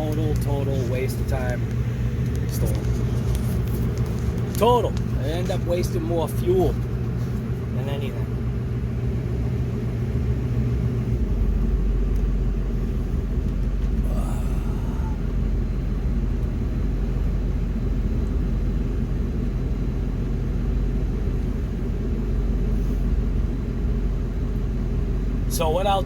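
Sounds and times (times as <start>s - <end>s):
truck engine rumbling: 0.0s - 26.0s.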